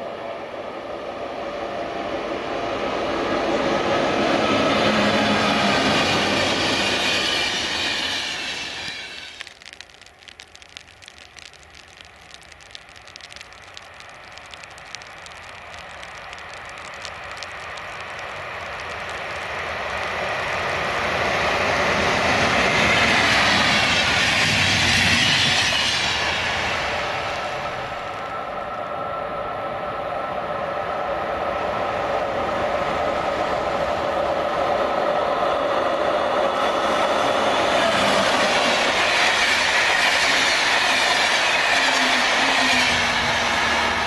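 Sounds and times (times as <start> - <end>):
distant electric train approaching: 0.0 - 9.4, 18.1 - 44.0
passenger train passing close: 0.0 - 9.4, 19.6 - 44.0.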